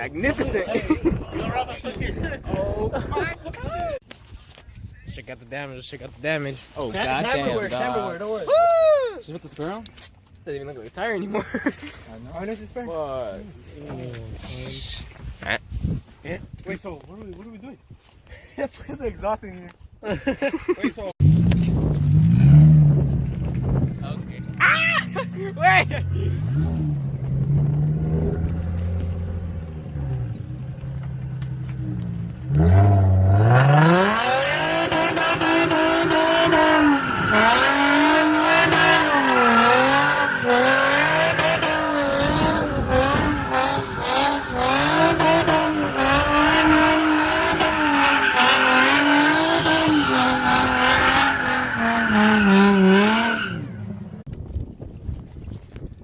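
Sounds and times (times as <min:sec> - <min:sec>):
car engine revving: 0:21.2 - 0:24.6, 0:25.3 - 0:54.2
tyres squealing: 0:35.0 - 0:53.8.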